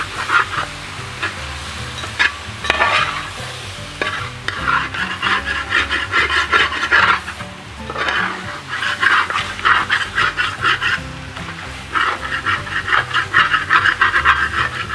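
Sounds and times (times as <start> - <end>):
meat sizzling: 0.0 - 14.9
spatula scraping through meat: 0.0 - 14.9.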